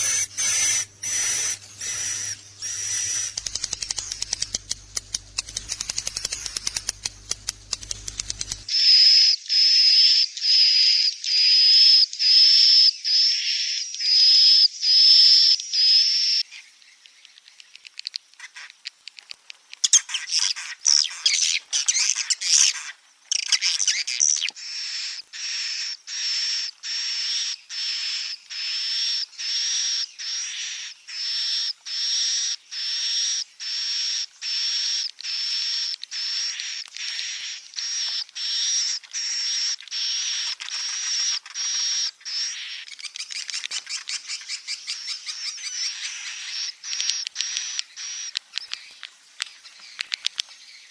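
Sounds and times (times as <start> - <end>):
dense bird chattering: 0.0 - 8.7, 23.4 - 50.9
high buzzy bird chirps: 0.0 - 17.8, 19.8 - 50.9
rapid bird clicking: 0.4 - 8.7, 39.8 - 42.0, 42.9 - 44.6, 46.8 - 50.9.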